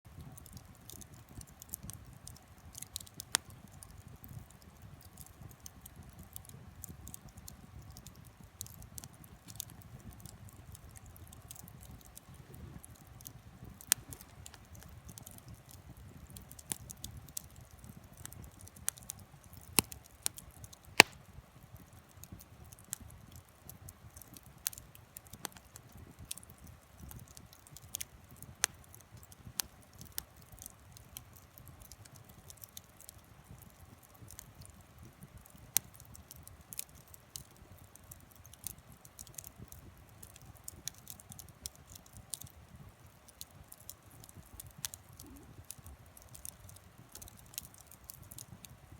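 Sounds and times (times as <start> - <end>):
wood fire crackling and popping: 0.1 - 48.9.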